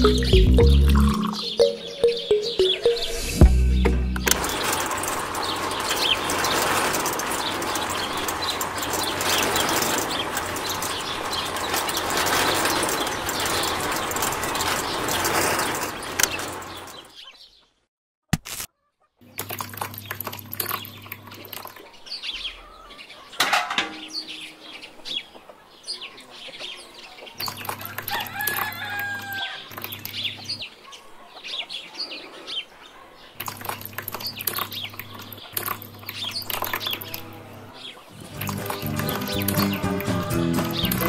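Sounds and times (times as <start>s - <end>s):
birds chirping: 0.0s - 17.8s, 19.1s - 41.0s.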